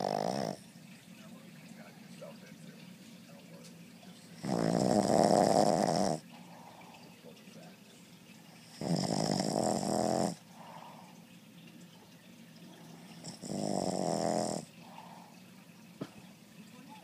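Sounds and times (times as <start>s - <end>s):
dog snoring: 0.0s - 0.7s, 4.2s - 7.0s, 8.6s - 11.2s, 12.8s - 15.3s
dog breathing quietly: 4.2s - 11.4s, 14.4s - 16.3s.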